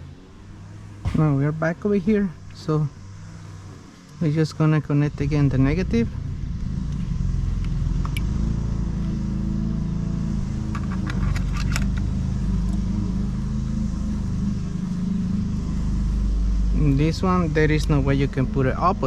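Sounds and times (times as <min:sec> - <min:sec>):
engine droning: 0:00.0 - 0:19.0
clicks and rattles of parts: 0:10.7 - 0:12.1.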